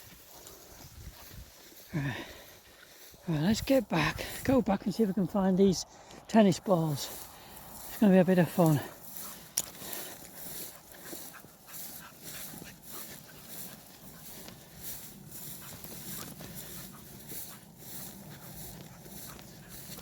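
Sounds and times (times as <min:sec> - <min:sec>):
dog panting: 0:07.0 - 0:20.0.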